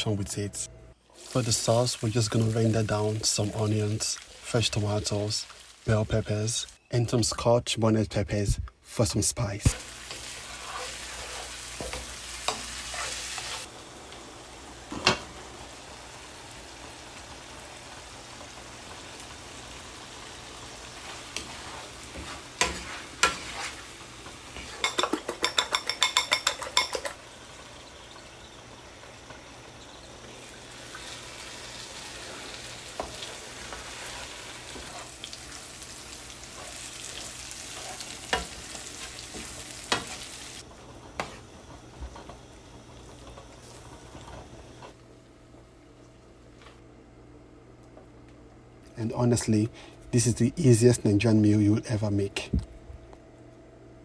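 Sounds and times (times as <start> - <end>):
vegetables sizzling in a frying pan: 1.1 - 6.8, 9.7 - 45.0
spoon stirring and clicking on pan: 24.6 - 27.2.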